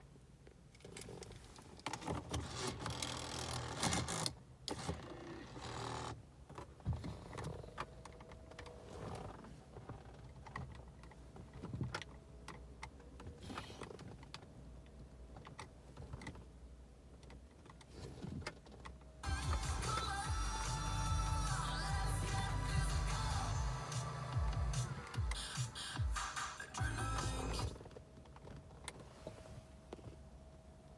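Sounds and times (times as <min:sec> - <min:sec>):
repeated clicks: 0:18.7 - 0:28.6.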